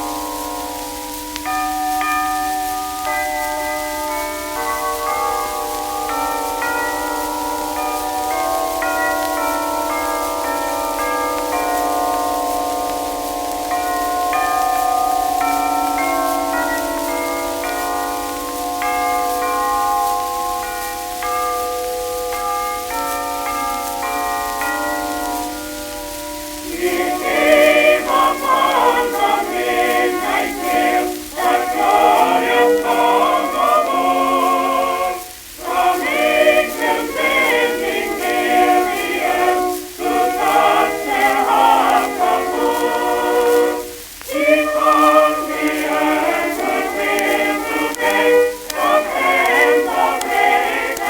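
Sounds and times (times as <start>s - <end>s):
choir singing on old record: 0.0s - 51.0s
record surface crackle: 0.0s - 51.0s.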